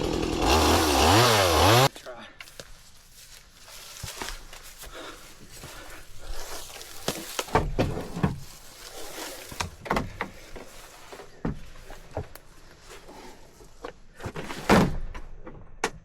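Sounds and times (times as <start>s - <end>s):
brush and branches rustling: 1.6s - 13.9s
heavy thumps of logs dropped: 7.0s - 8.6s.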